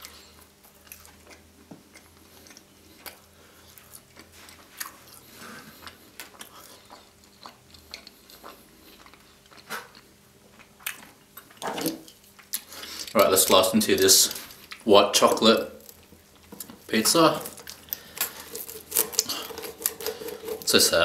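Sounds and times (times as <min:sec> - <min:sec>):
person chewing with wet smacks: 0:00.0 - 0:13.3.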